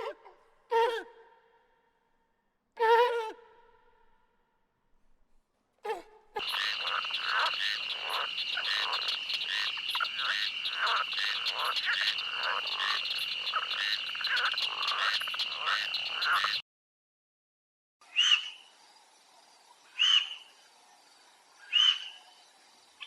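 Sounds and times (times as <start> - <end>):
frogs croaking: 6.4 - 16.6, 18.0 - 23.0
high-pitched frog trill: 6.4 - 16.6.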